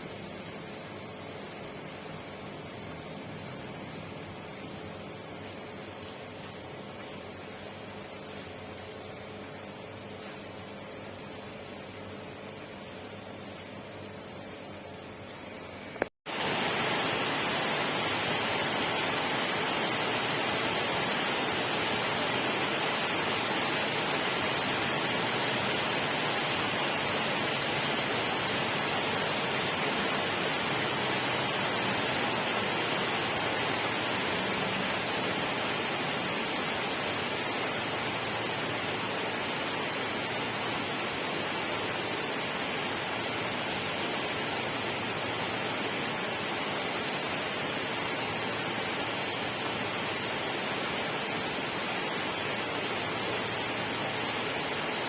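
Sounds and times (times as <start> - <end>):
rushing water hiss: 15.9 - 55.0.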